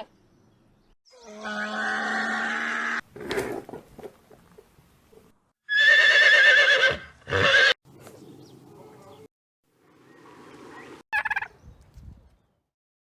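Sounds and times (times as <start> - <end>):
horse whinnying: 5.7 - 7.8.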